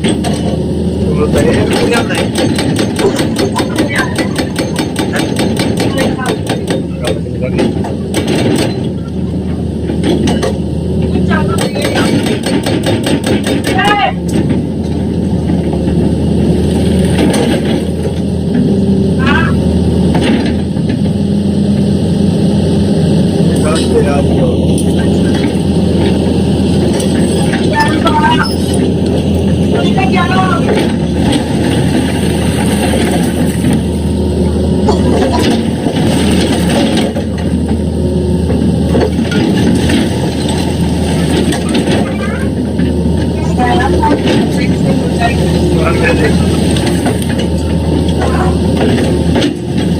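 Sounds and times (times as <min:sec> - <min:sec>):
excavator diesel engine running: 0:00.0 - 0:49.9
rapid sharp knocks: 0:01.7 - 0:08.8, 0:11.6 - 0:13.9.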